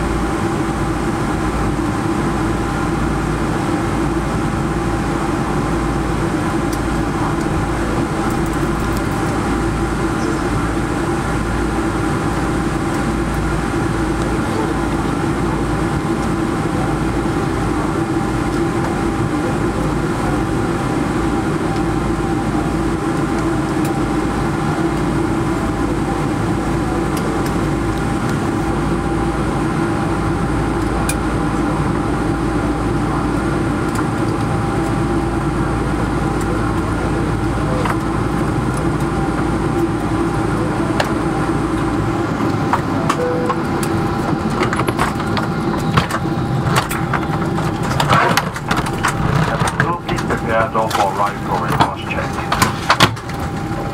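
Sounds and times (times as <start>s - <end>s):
airplane cabin engine hum: 0.0s - 53.9s
whining tones: 40.6s - 53.9s.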